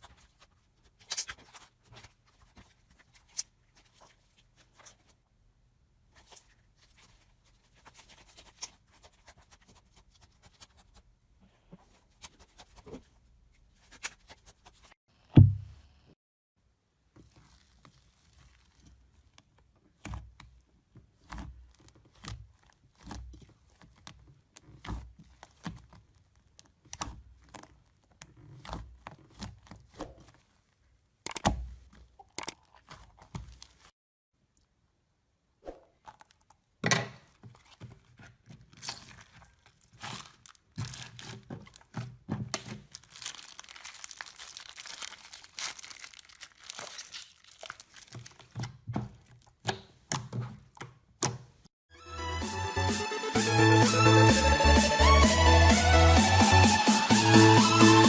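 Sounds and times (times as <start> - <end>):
loud thump: 15.4 - 15.8
crunchy material crackling and tearing: 17.2 - 20.1, 21.1 - 30.6, 37.5 - 42.0, 42.6 - 49.6.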